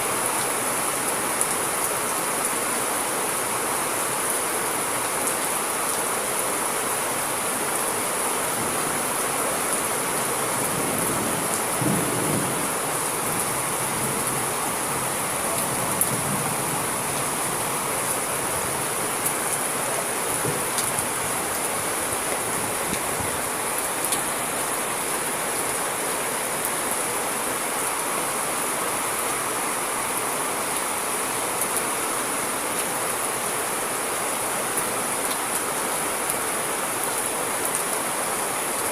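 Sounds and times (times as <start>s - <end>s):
steady rain: 0.0s - 38.9s
low thunder rumble: 10.7s - 12.7s
raindrop ticks: 20.4s - 21.7s.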